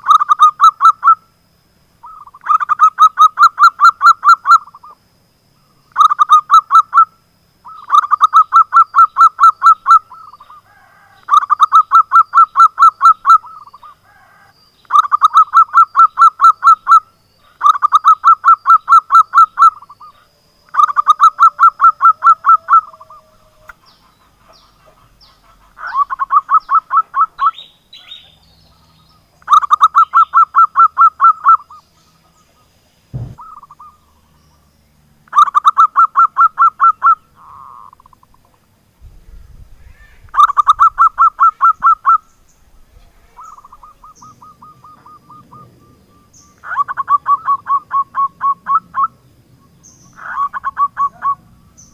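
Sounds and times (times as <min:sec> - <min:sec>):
dove cooing song: 0:00.0 - 0:01.2, 0:02.0 - 0:05.0, 0:05.9 - 0:34.3, 0:35.3 - 0:38.6, 0:39.3 - 0:51.9
sharp knock: 0:33.1 - 0:33.4.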